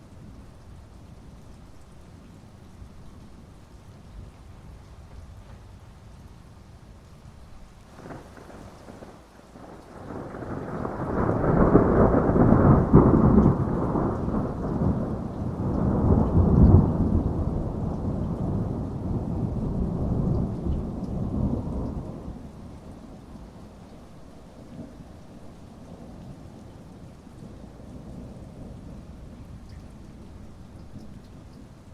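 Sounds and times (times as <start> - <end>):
heavy rain: 0.0 - 31.9
thunder rolling: 7.9 - 22.4.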